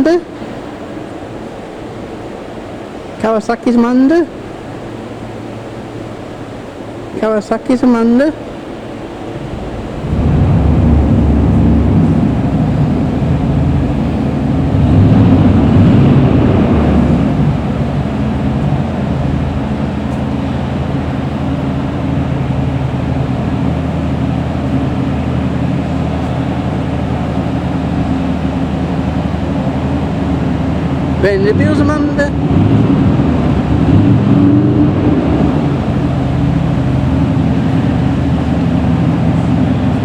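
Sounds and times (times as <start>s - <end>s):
engine running with pulsing note: 8.6s - 40.0s.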